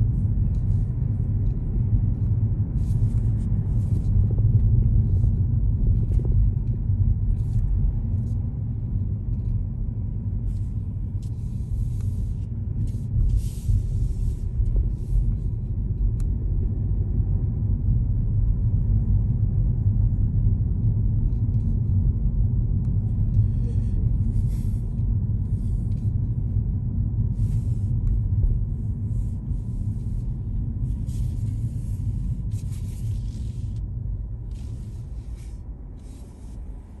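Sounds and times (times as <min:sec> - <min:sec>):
car road and engine noise: 0:00.0 - 0:37.0.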